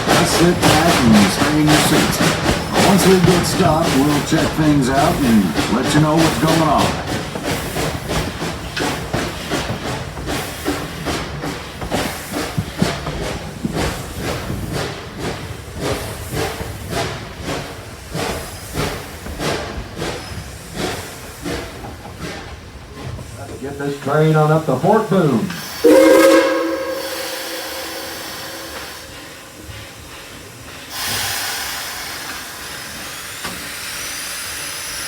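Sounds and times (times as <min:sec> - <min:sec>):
steam hiss: 0:00.0 - 0:21.8, 0:25.6 - 0:35.0
steam locomotive exhaust chuffs: 0:00.0 - 0:35.0.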